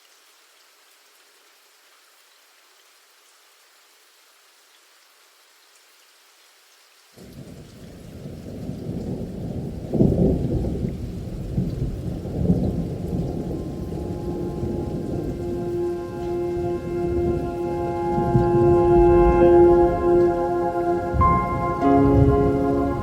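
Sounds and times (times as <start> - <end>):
rain hissing: 0.0 - 23.0
thunder rumbling and cracking: 8.2 - 23.0
held music notes: 13.4 - 23.0.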